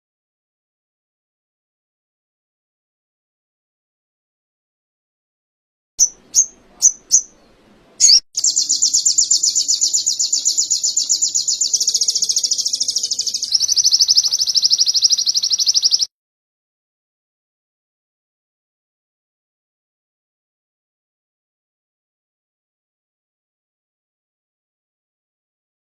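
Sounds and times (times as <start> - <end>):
songbird chirping and trilling: 6.0 - 16.1.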